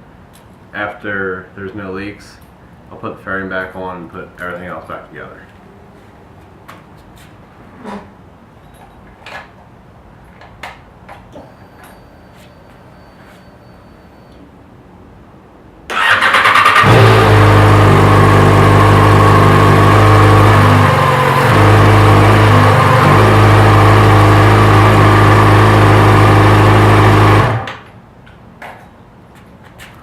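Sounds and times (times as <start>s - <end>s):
electric starter cranking: 15.9s - 27.8s.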